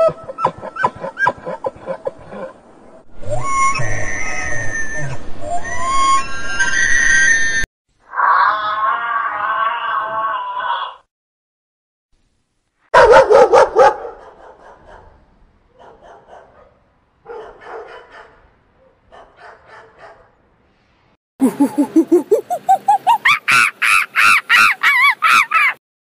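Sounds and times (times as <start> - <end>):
rising pitched calls: 3.2 - 10.3, 21.4 - 25.8
dog barking: 12.9 - 20.4.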